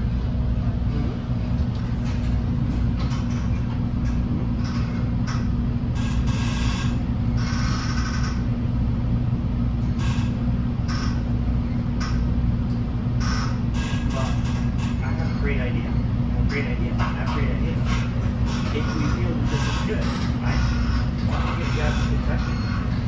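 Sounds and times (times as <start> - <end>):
constant hum: 0.0 - 23.0
train wheels rumbling on rails: 0.0 - 23.0.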